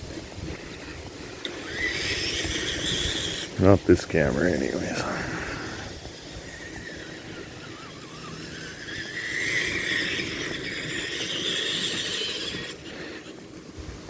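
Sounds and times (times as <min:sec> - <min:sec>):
electric motor whining: 0:01.3 - 0:03.6, 0:04.3 - 0:14.0.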